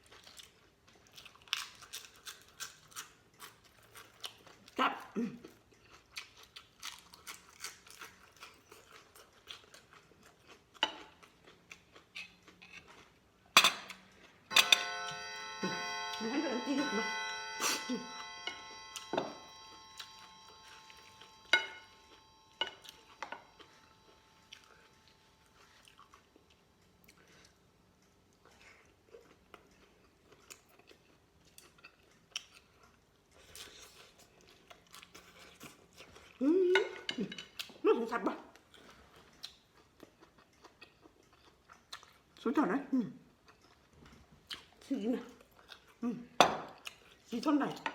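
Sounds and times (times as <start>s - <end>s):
person chewing and crunching: 0.0s - 14.5s, 18.7s - 37.8s, 38.5s - 42.4s, 43.2s - 47.3s.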